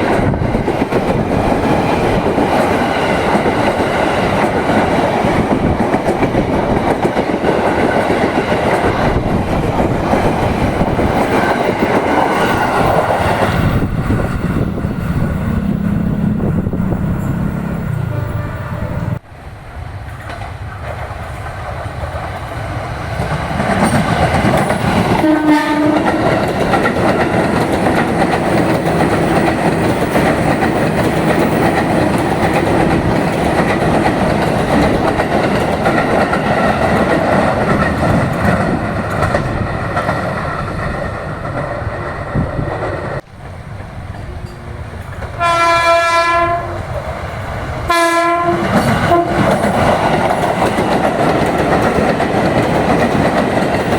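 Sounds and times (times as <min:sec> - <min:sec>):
train wheels rumbling on rails: 0:00.0 - 0:53.9
train horn: 0:16.0 - 0:19.2, 0:25.1 - 0:26.4, 0:45.4 - 0:47.0, 0:47.9 - 0:49.6.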